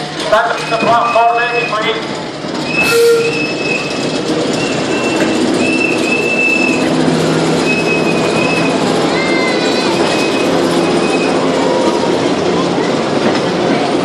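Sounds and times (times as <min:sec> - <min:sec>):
train wheel-on-rail rumble: 0:00.0 - 0:14.0
metallic wheel squeals: 0:00.6 - 0:01.9, 0:02.6 - 0:11.8.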